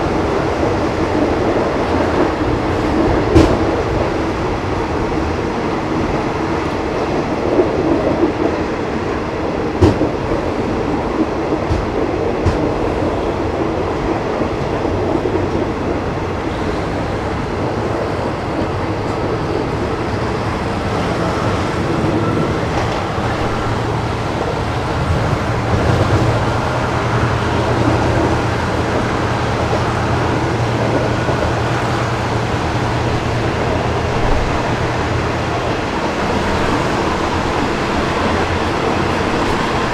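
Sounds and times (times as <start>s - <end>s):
train wheels rumbling on track: 0.0s - 39.9s
wheels clacking over rail joints: 9.7s - 19.8s.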